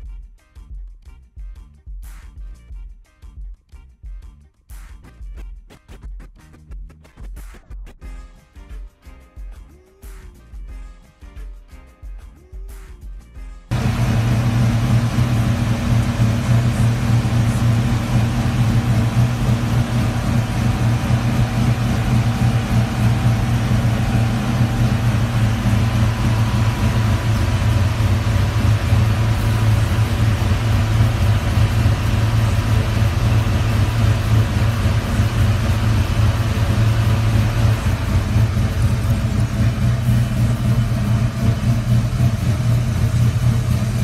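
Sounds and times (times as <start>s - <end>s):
car engine idling: 13.7s - 44.0s.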